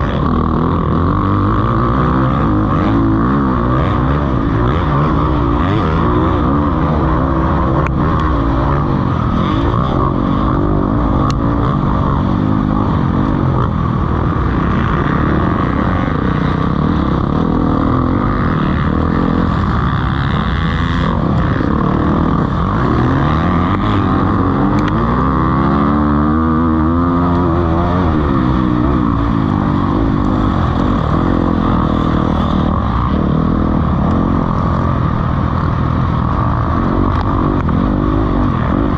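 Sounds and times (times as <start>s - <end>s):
motocross bikes revving: 0.0s - 38.9s.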